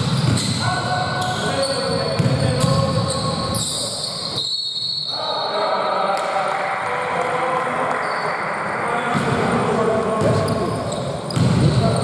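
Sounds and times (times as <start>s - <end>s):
basketball bouncing on court: 0.0s - 0.6s, 1.9s - 3.2s, 11.3s - 12.0s
echoing voices: 0.0s - 4.4s, 5.0s - 12.0s.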